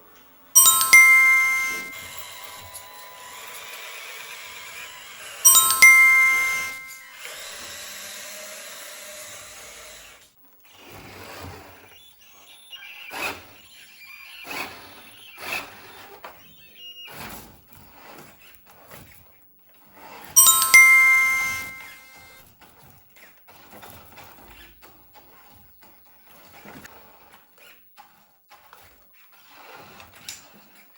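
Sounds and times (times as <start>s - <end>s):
ding-dong chime: 0.6s - 2.4s, 5.5s - 7.3s, 20.4s - 22.3s.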